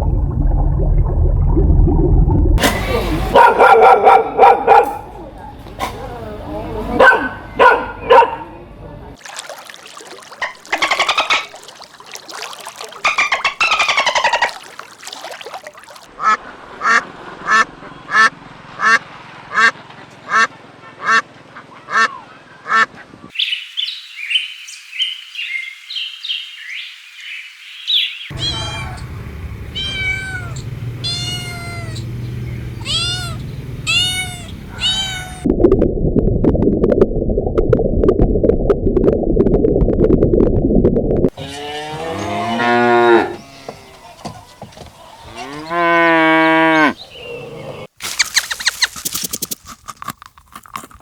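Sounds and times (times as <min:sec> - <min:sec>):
dense low noise: 0:00.0 - 0:03.4
arching pitched animal calls: 0:13.0 - 0:14.6, 0:28.3 - 0:35.4, 0:41.3 - 0:47.9.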